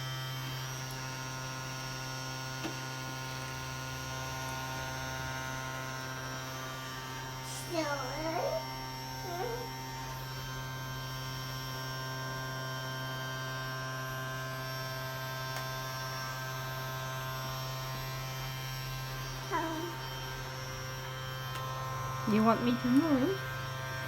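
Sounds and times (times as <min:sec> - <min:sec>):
child's voice: 0:07.4 - 0:09.7, 0:19.5 - 0:20.0
vacuum cleaner motor humming: 0:11.7 - 0:24.0.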